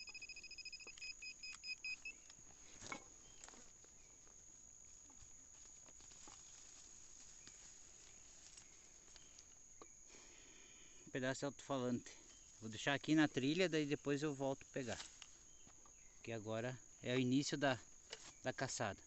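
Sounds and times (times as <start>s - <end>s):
metal detector pulsing tone: 0.0s - 2.2s.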